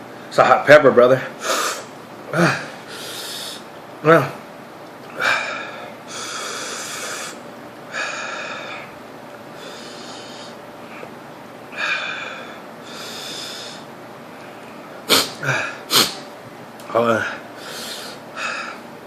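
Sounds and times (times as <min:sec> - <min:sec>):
sharp mouth sounds: 0:15.1 - 0:16.2.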